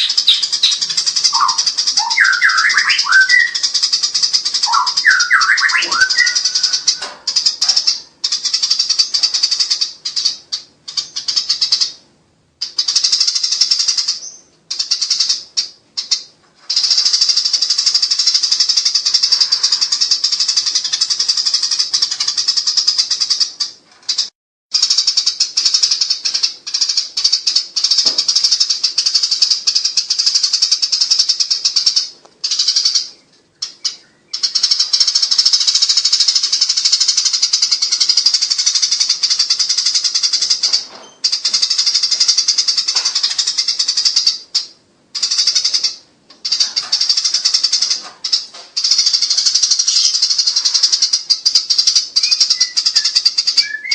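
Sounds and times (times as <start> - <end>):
sparrows chattering: 0.0 - 53.9.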